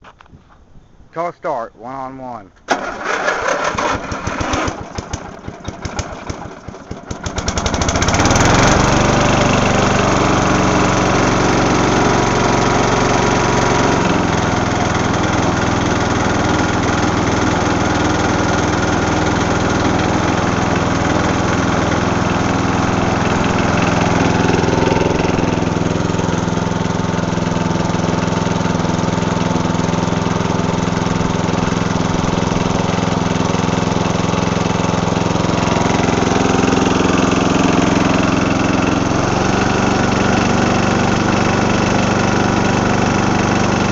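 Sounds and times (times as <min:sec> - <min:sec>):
starter motor cranking: 0:02.7 - 0:06.7
mower engine running: 0:02.7 - 0:43.9.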